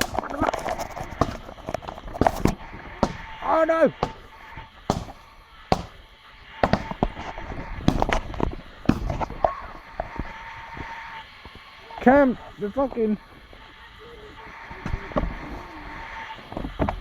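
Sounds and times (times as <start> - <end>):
fireworks bangs and cracks: 0.0 - 11.0
thin steady whistle: 0.0 - 17.0.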